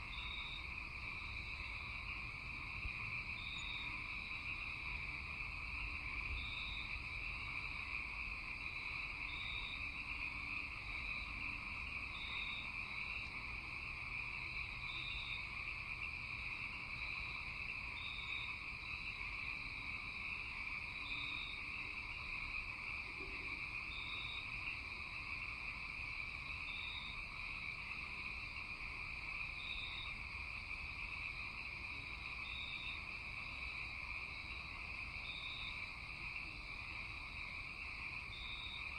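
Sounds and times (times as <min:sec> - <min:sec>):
crickets trilling: 0:00.0 - 0:38.9
frogs chirping: 0:00.0 - 0:38.9.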